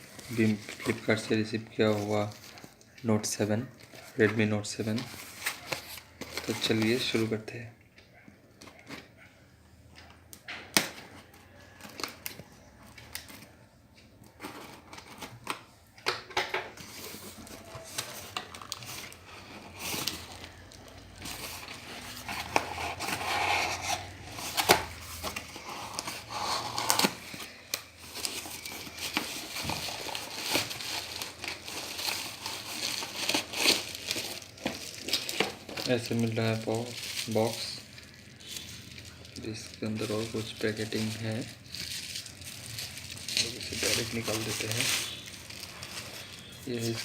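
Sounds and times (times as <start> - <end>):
packaging tearing and crinkling: 16.8 - 47.0.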